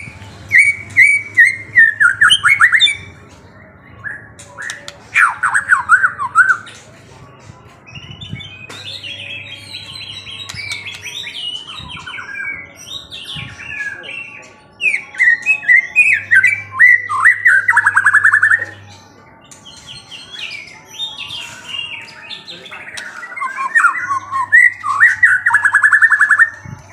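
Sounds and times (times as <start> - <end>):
songbird singing: 0.0 - 26.9
fast bird trill: 19.8 - 26.6.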